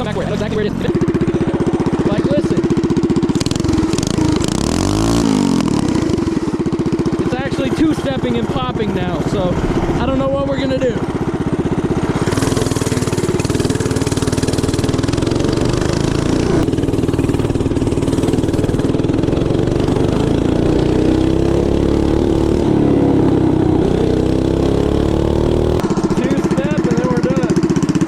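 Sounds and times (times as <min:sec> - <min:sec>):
man talking: 0:00.0 - 0:02.7, 0:07.2 - 0:11.1, 0:26.0 - 0:27.6
small engine with open exhaust revving: 0:00.0 - 0:28.0.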